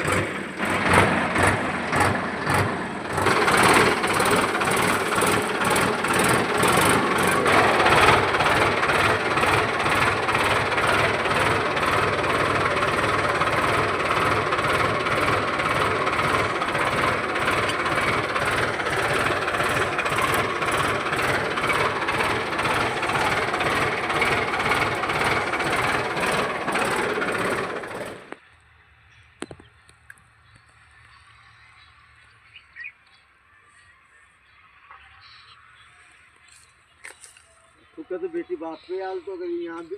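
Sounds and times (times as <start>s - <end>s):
tractor engine running: 0.0s - 31.4s.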